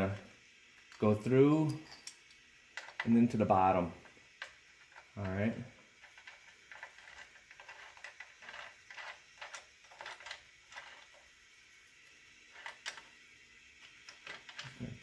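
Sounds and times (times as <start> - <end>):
hardware clicking and scraping: 0.9 - 3.2, 4.0 - 11.2, 12.5 - 13.2, 13.8 - 15.0.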